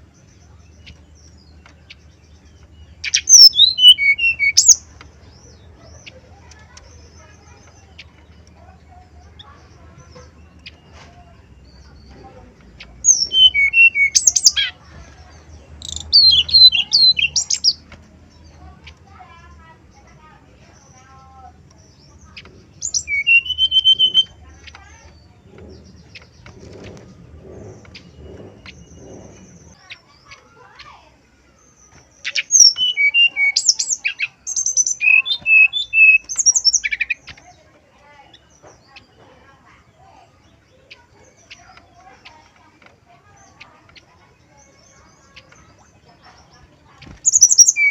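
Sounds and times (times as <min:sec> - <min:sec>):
flycatcher singing whistled notes: 0:03.0 - 0:04.8, 0:22.8 - 0:24.4, 0:32.3 - 0:37.2, 0:47.2 - 0:47.9.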